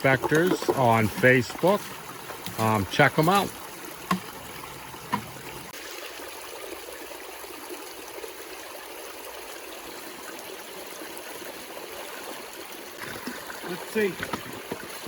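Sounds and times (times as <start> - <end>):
river water rushing: 9.1 - 15.0.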